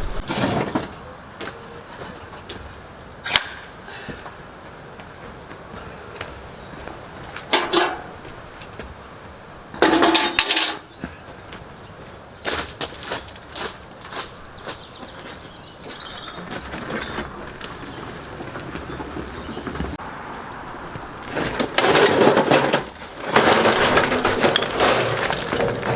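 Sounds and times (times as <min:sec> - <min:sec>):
broken concrete clattering and scraping: 0:00.0 - 0:01.7, 0:07.4 - 0:08.8, 0:09.7 - 0:11.2, 0:21.2 - 0:25.9.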